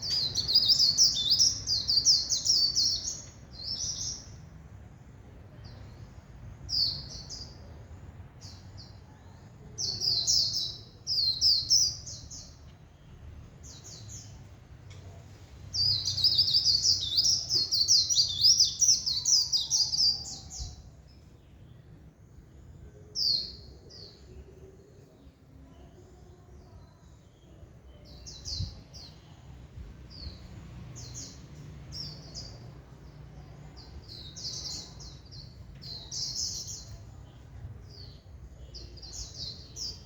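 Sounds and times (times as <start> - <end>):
bird singing high twittering: 0.0 - 4.4, 15.8 - 20.9.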